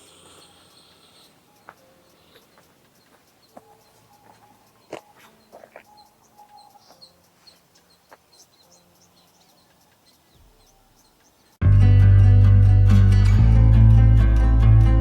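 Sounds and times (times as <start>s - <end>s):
birds chirping: 0.0s - 11.6s
lower clucking bird calls: 0.0s - 11.6s
sharp clicks: 0.1s - 11.6s.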